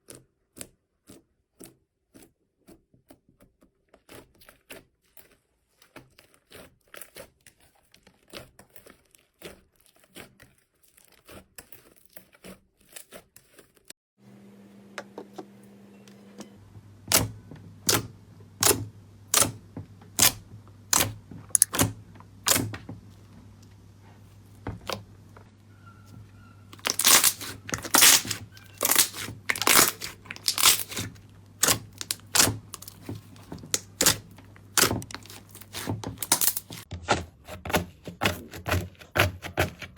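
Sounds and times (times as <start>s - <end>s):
slime squeezed by hand: 26.7s - 33.0s
slime crackling snaps: 26.8s - 33.0s.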